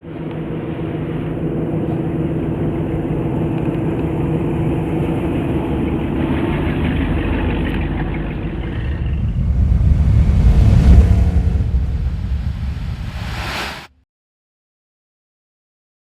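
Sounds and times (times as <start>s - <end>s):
deep low rumble: 6.2s - 13.9s.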